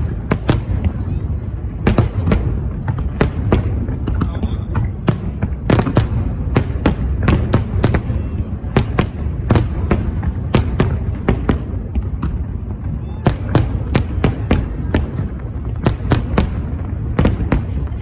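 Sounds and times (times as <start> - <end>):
fireworks bangs: 0.0 - 18.0
steady low rumble: 0.0 - 18.0.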